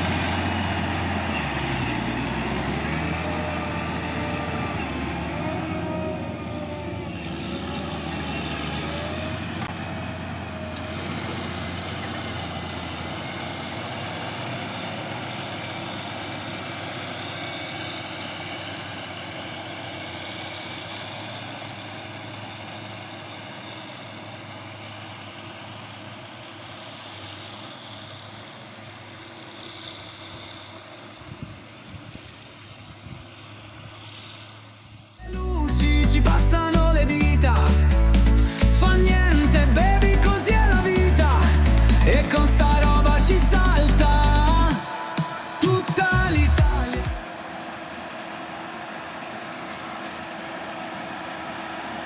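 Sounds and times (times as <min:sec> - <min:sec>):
harvester engine drone: 0:00.0 - 0:52.0
chopper rushing noise: 0:35.8 - 0:49.6.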